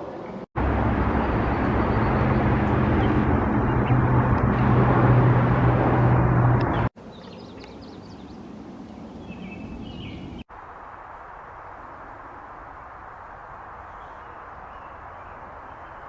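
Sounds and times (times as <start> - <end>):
loud motor drone: 0.6 - 6.9.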